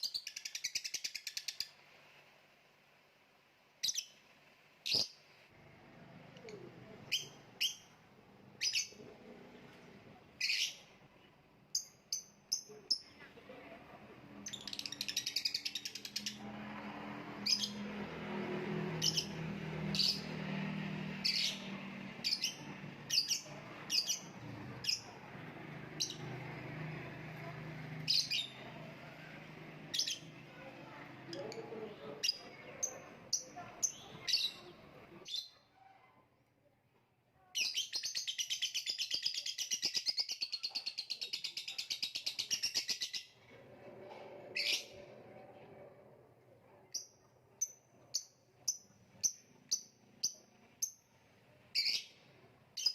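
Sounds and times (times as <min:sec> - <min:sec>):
lovebird chirping and trilling: 0:00.0 - 0:01.8, 0:03.8 - 0:04.2, 0:04.8 - 0:05.2, 0:07.1 - 0:08.0, 0:08.6 - 0:09.0, 0:10.4 - 0:10.9, 0:11.7 - 0:13.1, 0:14.4 - 0:16.4, 0:17.4 - 0:17.8, 0:19.0 - 0:20.4, 0:21.2 - 0:25.1, 0:28.0 - 0:28.6, 0:29.9 - 0:30.3, 0:32.2 - 0:35.6, 0:37.6 - 0:43.4, 0:46.9 - 0:51.0, 0:51.7 - 0:52.2.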